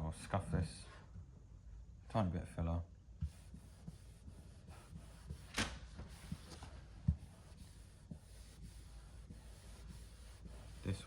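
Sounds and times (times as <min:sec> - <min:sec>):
hand rubbing a panel: 0:03.2 - 0:11.0.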